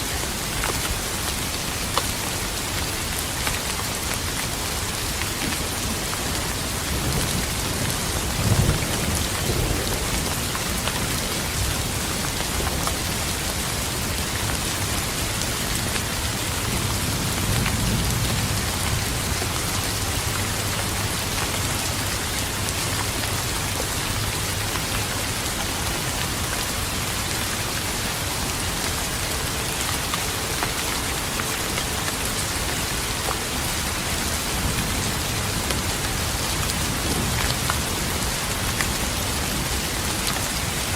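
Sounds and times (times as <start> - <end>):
steady rain falling: 0.0 - 40.9
low thunder rumble: 5.8 - 14.0
thunder clap: 6.9 - 12.8.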